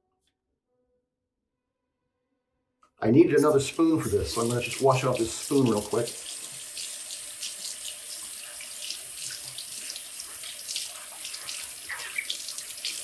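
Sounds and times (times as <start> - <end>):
spoon clinking: 3.4 - 6.0
small splashes: 3.4 - 13.0
tap water running into sink: 3.4 - 13.0.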